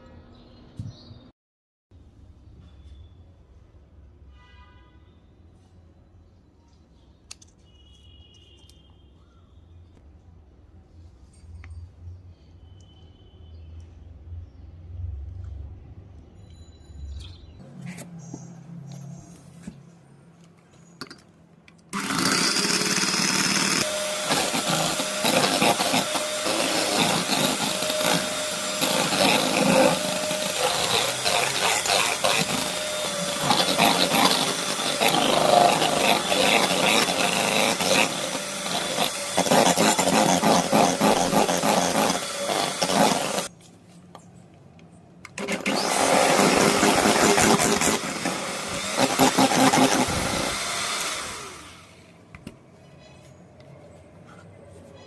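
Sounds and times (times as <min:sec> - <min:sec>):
electric mixer whisks rattling: 0:22.0 - 0:43.5, 0:45.4 - 0:51.8.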